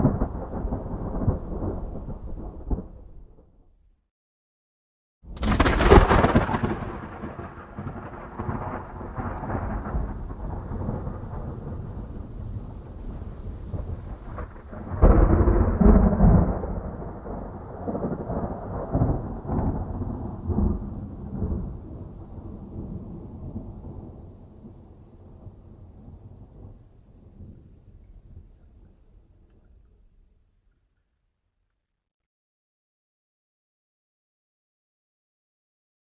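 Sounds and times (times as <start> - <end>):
thunder rolling and rumbling: 0.0 - 3.6, 5.3 - 30.2
steady rain: 5.3 - 30.3.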